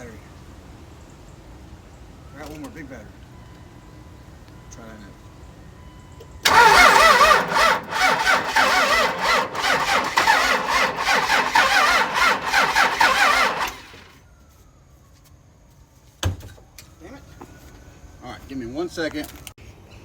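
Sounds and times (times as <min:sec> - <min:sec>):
starter motor cranking diesel engine: 0:06.4 - 0:14.2.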